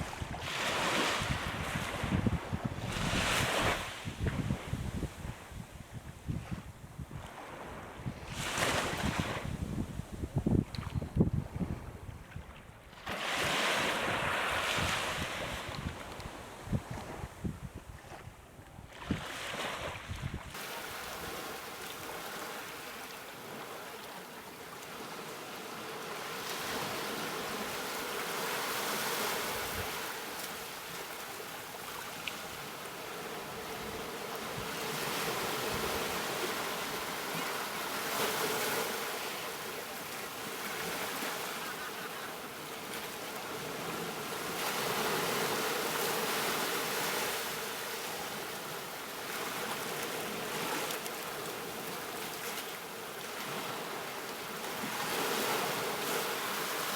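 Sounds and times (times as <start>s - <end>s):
ocean waves breaking: 20.6s - 48.4s.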